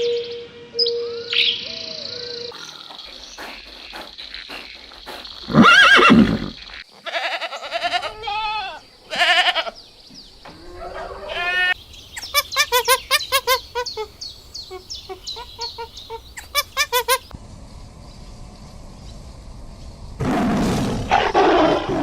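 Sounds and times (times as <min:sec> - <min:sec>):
farm animals bleating: 0:05.5 - 0:09.8, 0:10.5 - 0:17.3.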